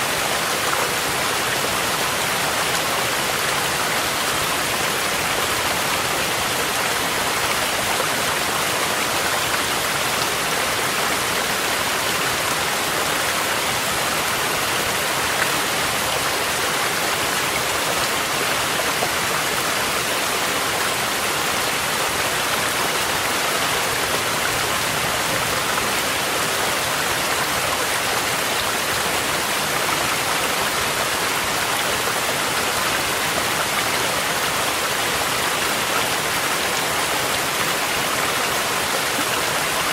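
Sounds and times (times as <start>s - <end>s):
falling rain: 0.0s - 39.9s
mountain stream rushing: 0.0s - 39.9s.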